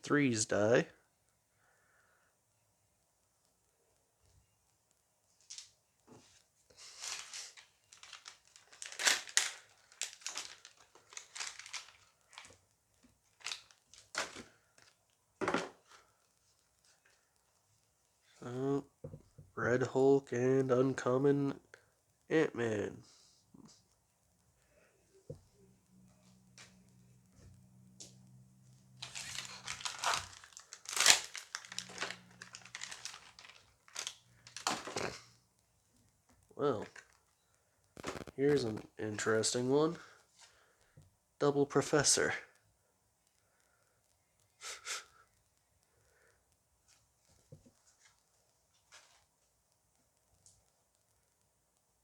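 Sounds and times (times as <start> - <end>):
foil pack crinkling and tearing: 6.8 - 12.6, 13.3 - 15.0, 28.9 - 35.3, 38.0 - 39.0.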